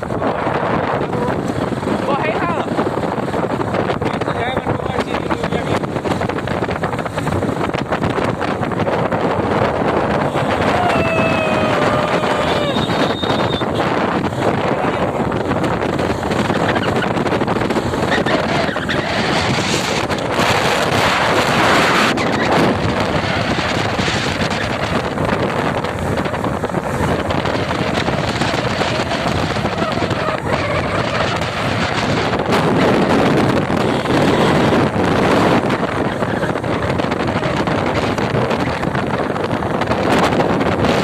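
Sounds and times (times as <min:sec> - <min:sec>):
motorcycle running noise: 0:00.0 - 0:41.0
wind rushing over microphone: 0:00.0 - 0:41.0.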